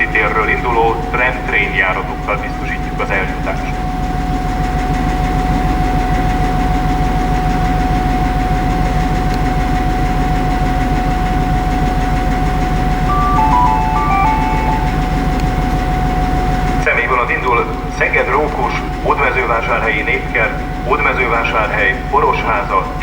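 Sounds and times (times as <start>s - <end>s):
loudspeaker electronic chime: 13.1s - 15.3s.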